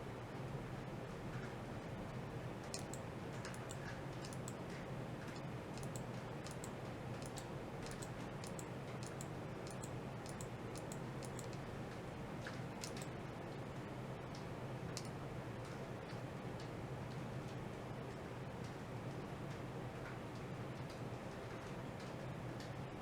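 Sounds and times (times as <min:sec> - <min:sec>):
steady low hum: 0:02.1 - 0:13.5
sharp high-pitched clicks: 0:02.7 - 0:04.6, 0:05.3 - 0:11.7, 0:12.8 - 0:13.2.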